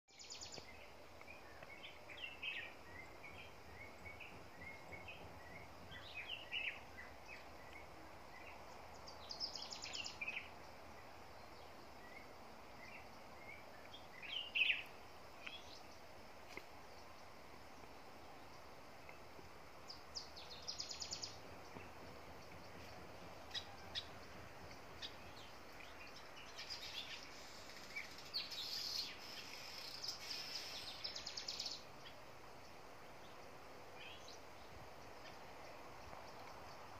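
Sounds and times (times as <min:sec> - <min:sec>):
faint outdoor background: 0:00.0 - 0:36.9
birds chirping and calling: 0:19.9 - 0:32.2.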